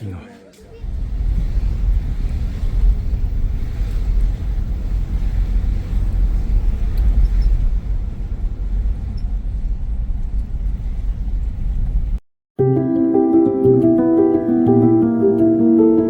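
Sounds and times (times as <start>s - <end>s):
wind buffeting microphone: 0.7s - 12.2s.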